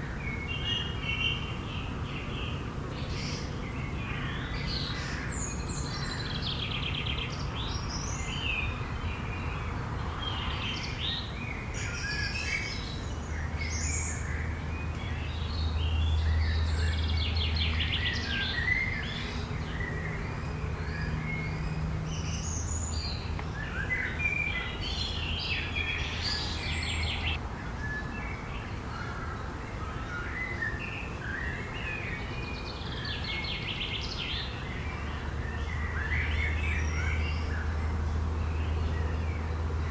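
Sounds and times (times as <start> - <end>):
small birds singing: 0.0 - 39.9.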